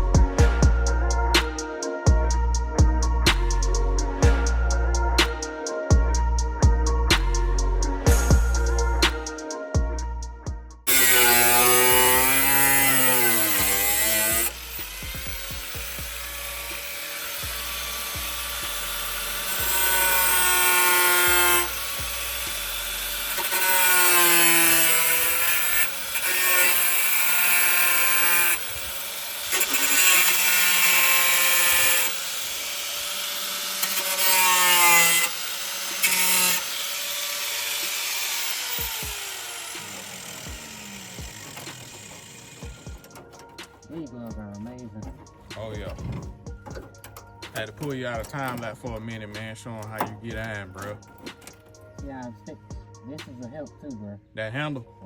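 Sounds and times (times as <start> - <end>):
angle grinder grinding metal: 10.9 - 53.4.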